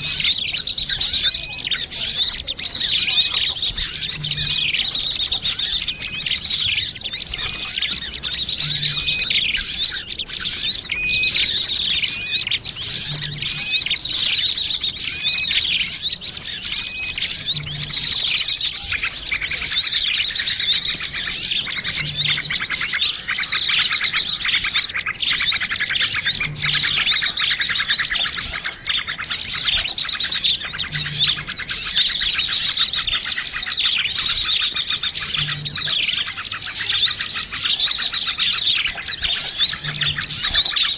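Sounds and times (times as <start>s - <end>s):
small birds chirping chorus: 0.0s - 40.9s.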